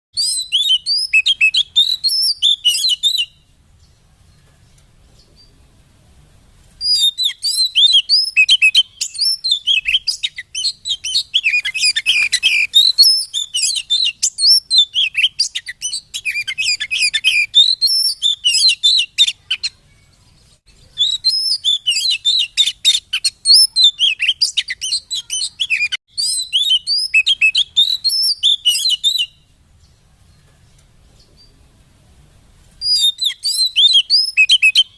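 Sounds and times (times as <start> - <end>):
bird chattering song: 0.2 - 5.6, 6.8 - 31.8, 32.8 - 34.9.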